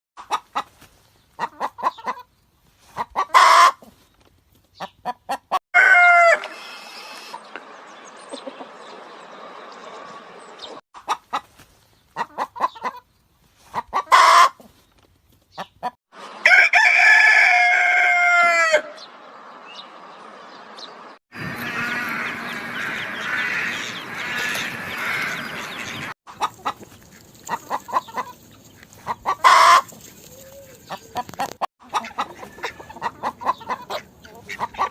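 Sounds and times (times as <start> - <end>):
chickens clucking: 0.2 - 4.0, 4.7 - 6.4, 7.3 - 14.7, 15.4 - 16.5, 21.4 - 34.9
rooster crowing: 5.8 - 6.5, 16.4 - 19.0.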